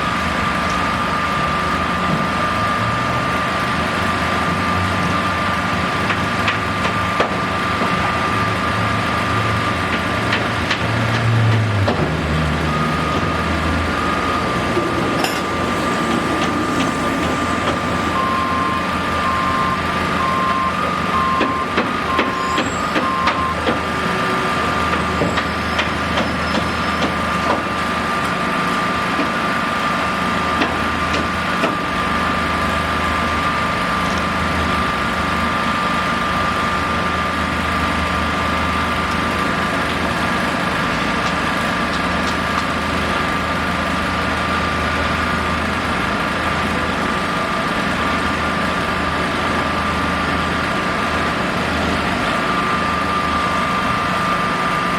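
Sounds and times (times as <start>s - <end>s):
heavy vehicle engine running: 0.0s - 54.9s
high whine: 12.4s - 25.5s
reversing alarm beeping: 12.4s - 27.1s.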